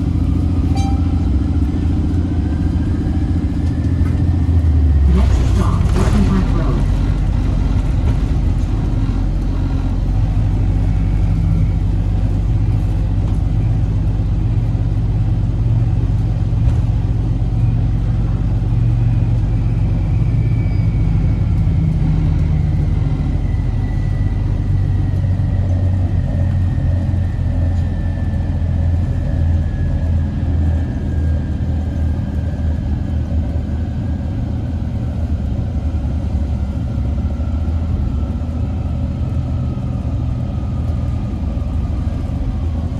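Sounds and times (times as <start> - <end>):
bus engine and road rumble: 0.0 - 42.9.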